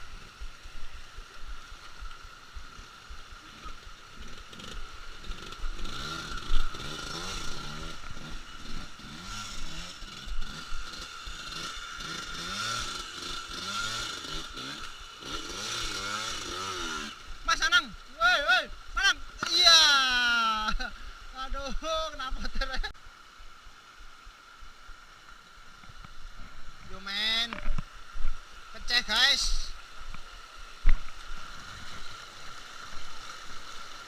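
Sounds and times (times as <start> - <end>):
motorcycle engine revving: 2.4 - 17.7.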